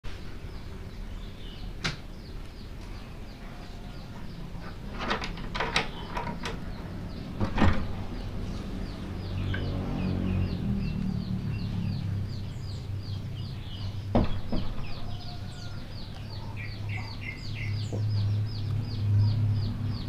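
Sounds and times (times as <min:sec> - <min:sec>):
birds chirping: 0:00.1 - 0:20.0
low steady background noise: 0:00.1 - 0:20.0
sharp knocks: 0:14.1 - 0:15.0.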